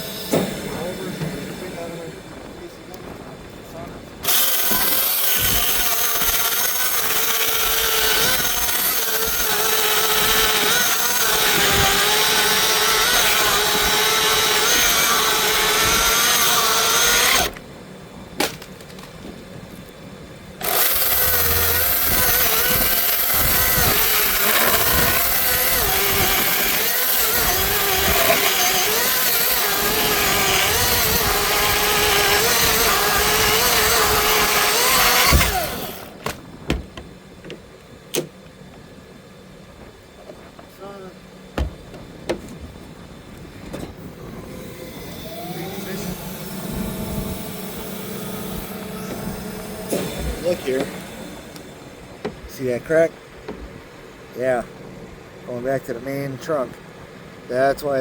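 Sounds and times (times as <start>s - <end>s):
chainsaw cutting a tree limb: 4.2s - 17.6s, 20.6s - 36.2s, 45.1s - 51.8s.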